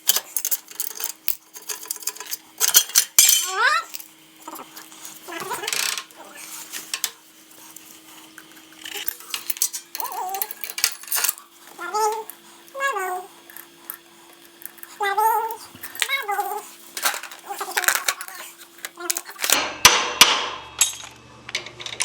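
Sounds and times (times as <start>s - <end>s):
metal tools clinking: 0.0s - 4.1s, 8.8s - 12.3s.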